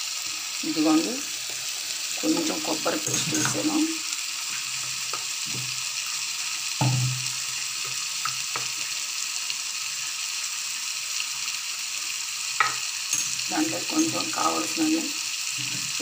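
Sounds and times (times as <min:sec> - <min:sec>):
food sizzling in a pan: 0:00.0 - 0:16.0
spatula knocking and scraping pan: 0:06.8 - 0:08.8.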